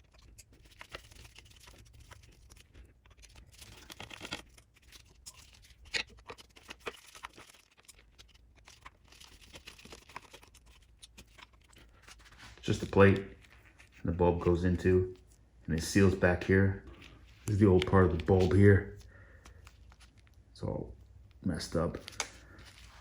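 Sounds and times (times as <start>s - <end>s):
plastic plate being handled: 3.5s - 20.4s.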